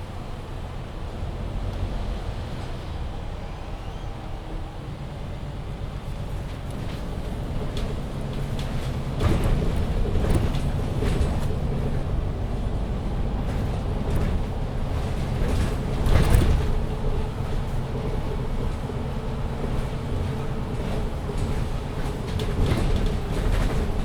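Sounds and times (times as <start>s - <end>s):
bus engine and road rumble: 0.0s - 24.0s
knocks and rattles: 6.5s - 19.0s, 19.6s - 24.0s.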